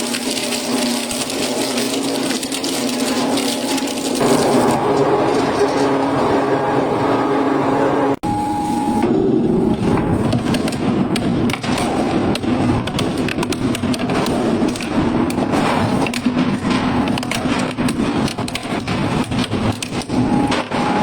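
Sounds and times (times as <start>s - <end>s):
metal cracking and banging: 0.0s - 6.8s, 10.1s - 21.0s
shredder machine drone: 0.0s - 13.4s, 19.8s - 21.0s.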